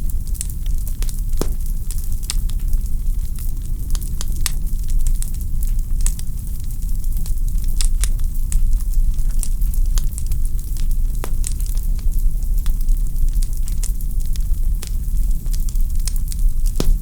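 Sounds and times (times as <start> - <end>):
fireplace logs crackling: 0.1 - 4.6, 9.2 - 17.0.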